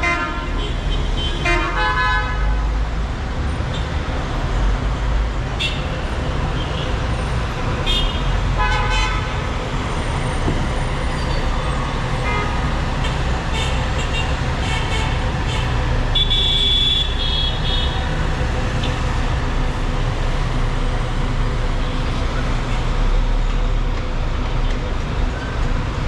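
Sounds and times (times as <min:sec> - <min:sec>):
traffic engine rumble: 0:00.0 - 0:26.0
car horns honking: 0:07.9 - 0:09.4, 0:13.5 - 0:18.0.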